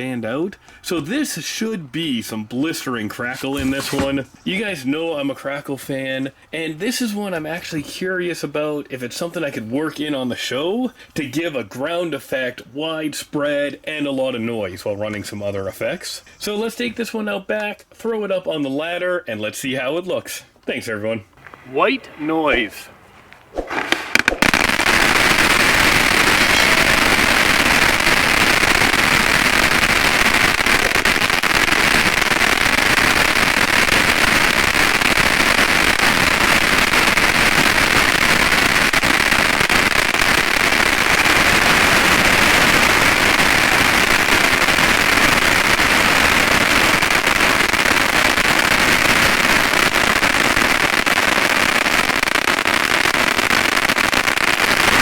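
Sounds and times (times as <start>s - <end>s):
firework fountain crackling: 0.8s - 5.4s, 21.4s - 55.0s.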